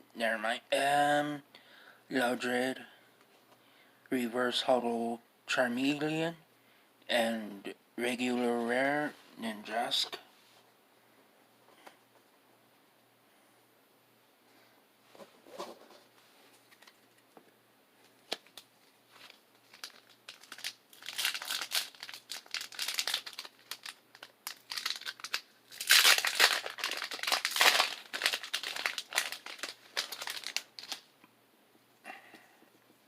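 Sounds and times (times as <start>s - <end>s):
foil wrapper crinkling and tearing: 18.3s - 31.1s.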